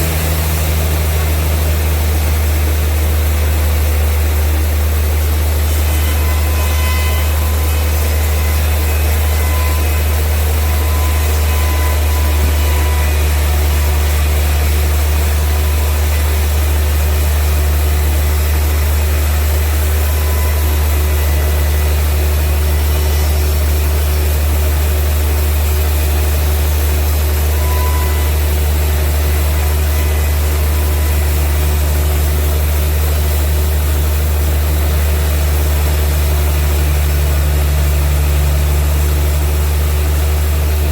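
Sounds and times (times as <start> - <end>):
sawmill machinery humming: 0.0 - 40.9.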